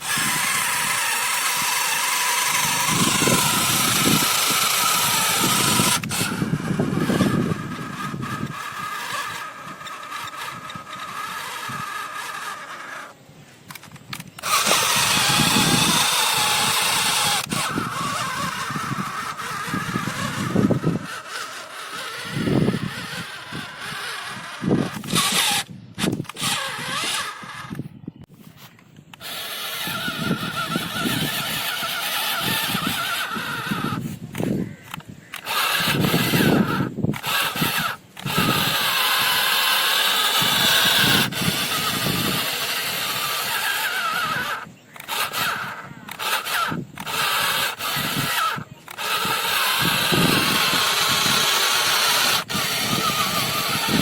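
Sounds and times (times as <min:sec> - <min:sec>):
model tractor motor whining: 0:00.0 - 0:54.0.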